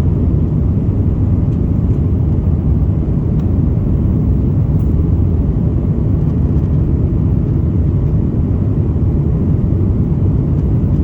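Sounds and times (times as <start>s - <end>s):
jet engine cabin rumble: 0.0s - 11.0s.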